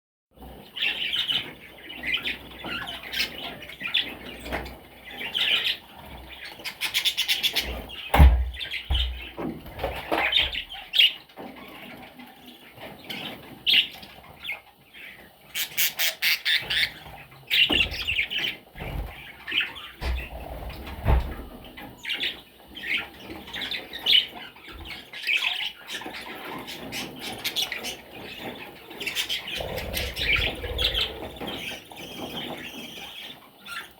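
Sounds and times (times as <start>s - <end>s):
budgerigar chirping and squawking: 15.6s - 18.6s, 29.1s - 33.2s.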